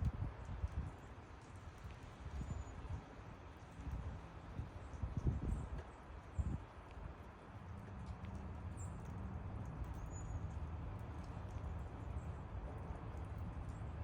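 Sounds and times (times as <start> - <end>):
rain falling through trees: 0.0 - 14.0.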